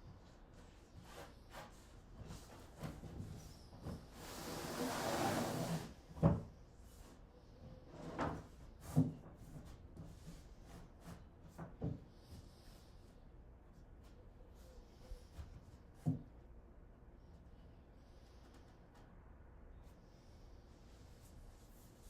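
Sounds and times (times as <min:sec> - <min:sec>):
plywood sliding scrape: 0:04.2 - 0:06.0.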